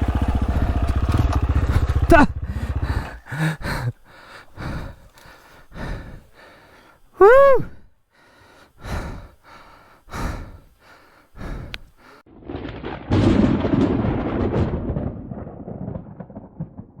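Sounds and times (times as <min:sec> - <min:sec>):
low rumbling noise: 0:00.0 - 0:05.1, 0:05.7 - 0:06.4
person breathing hard: 0:00.4 - 0:12.2.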